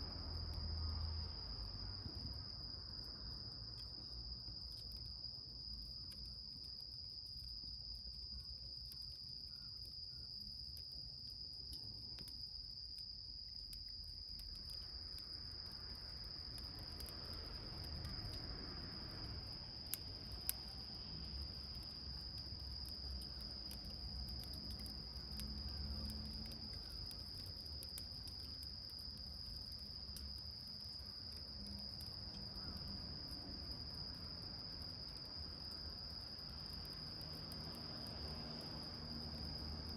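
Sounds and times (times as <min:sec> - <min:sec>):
crickets trilling: 0:00.0 - 0:39.9
wood fire crackling and popping: 0:10.5 - 0:39.9.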